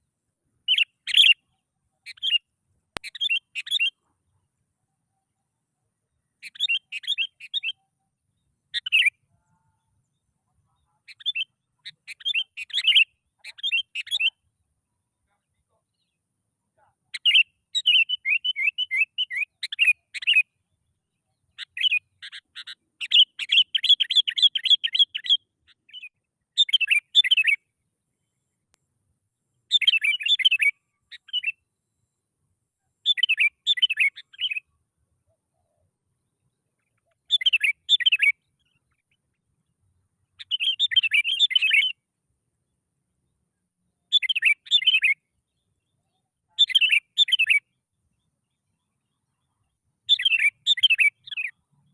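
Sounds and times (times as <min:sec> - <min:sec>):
bulbul singing: 0:00.6 - 0:04.1, 0:06.2 - 0:07.9, 0:08.7 - 0:09.3, 0:10.1 - 0:14.4, 0:33.0 - 0:34.7, 0:36.4 - 0:39.4, 0:40.3 - 0:42.0, 0:50.0 - 0:51.9.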